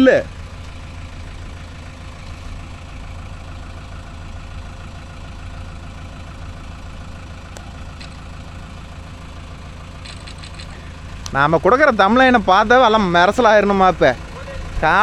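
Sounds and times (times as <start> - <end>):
diesel engine idling: 0.0 - 15.0
sharp click: 7.5 - 8.2, 10.0 - 11.4.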